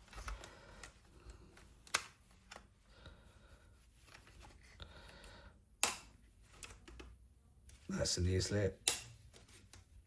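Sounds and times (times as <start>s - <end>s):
plastic parts clicking: 0.1s - 2.7s.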